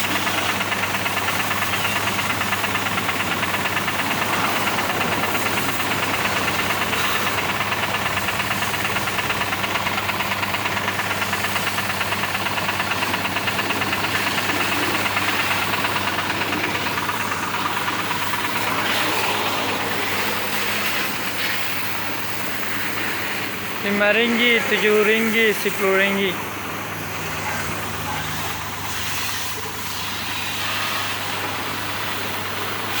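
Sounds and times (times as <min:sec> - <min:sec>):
pressure washer pump humming: 0:00.0 - 0:33.0
hiss of water spray: 0:18.2 - 0:23.4, 0:28.2 - 0:33.0.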